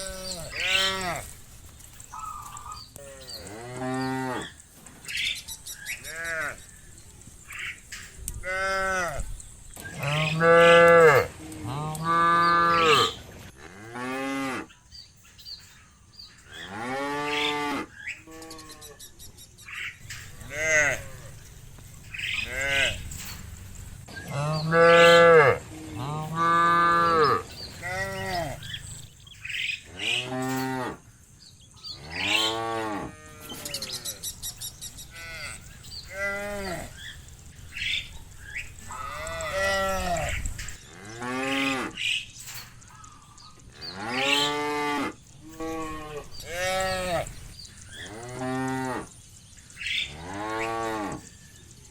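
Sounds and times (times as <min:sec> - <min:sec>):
cows mooing: 0:00.0 - 0:01.4, 0:02.4 - 0:04.6, 0:06.0 - 0:06.7, 0:08.4 - 0:09.3, 0:09.9 - 0:14.7, 0:16.5 - 0:19.0, 0:20.0 - 0:29.0, 0:29.8 - 0:31.1, 0:31.9 - 0:34.3, 0:35.1 - 0:37.2, 0:37.8 - 0:42.2, 0:43.8 - 0:49.2, 0:49.9 - 0:51.3.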